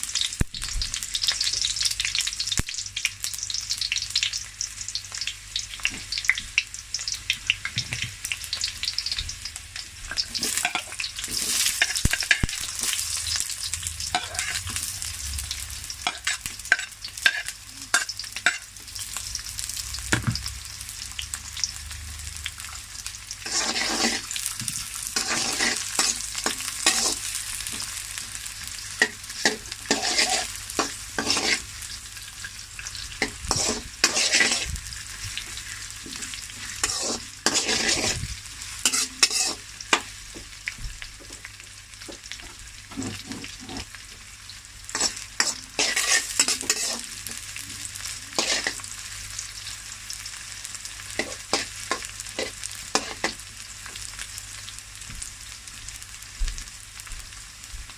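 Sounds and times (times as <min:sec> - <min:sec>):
food sizzling in a pan: 0:00.0 - 0:57.9
stirring strokes against pan: 0:23.4 - 0:27.9, 0:28.8 - 0:40.1, 0:44.9 - 0:48.9.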